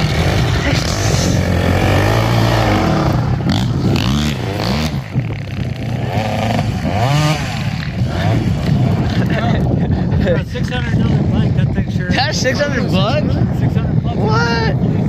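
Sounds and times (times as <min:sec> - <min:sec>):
dirt bike engine revving: 0:00.0 - 0:11.4.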